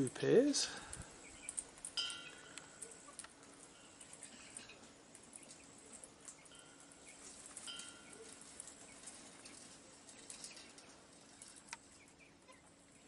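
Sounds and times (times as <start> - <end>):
bird chirps: 1.2 - 3.2.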